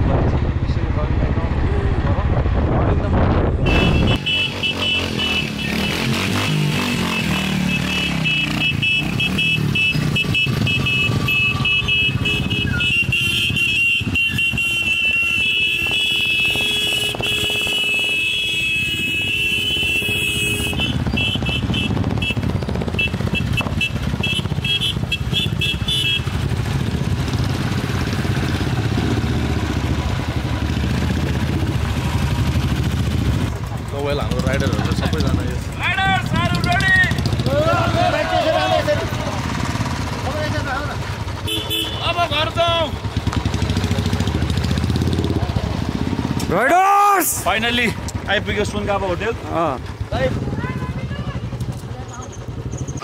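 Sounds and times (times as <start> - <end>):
motorcycle engine rumbling: 0.0 - 53.0.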